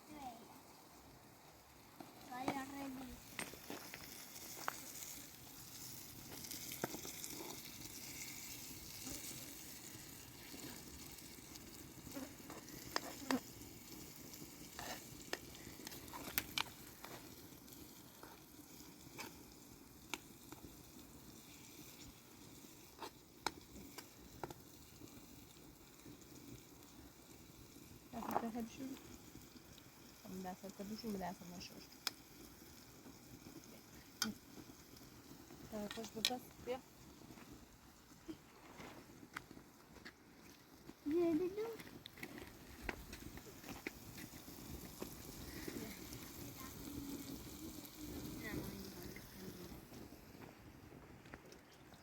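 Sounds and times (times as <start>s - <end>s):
food sizzling in a pan: 0.0s - 50.8s.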